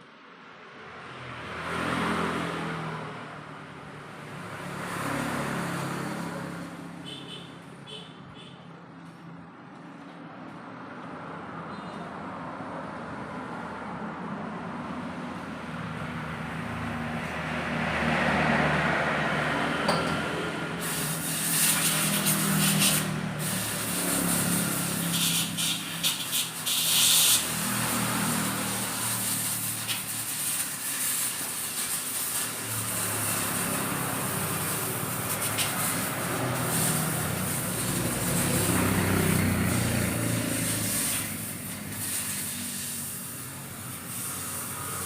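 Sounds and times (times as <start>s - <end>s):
loud hissing spray: 20.4s - 45.0s.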